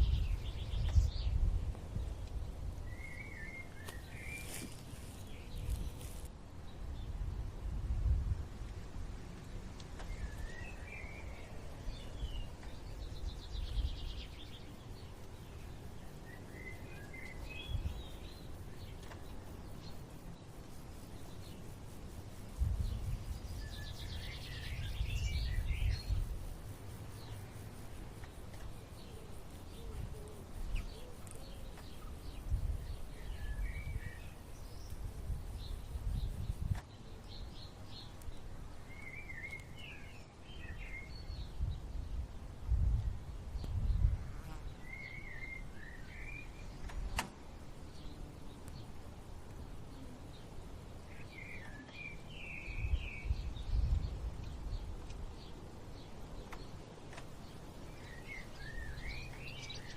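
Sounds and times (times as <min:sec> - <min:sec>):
small birds chirping: 0:00.0 - 0:07.6, 0:08.6 - 0:42.3, 0:42.9 - 0:59.9
sharp click: 0:46.8 - 0:47.4.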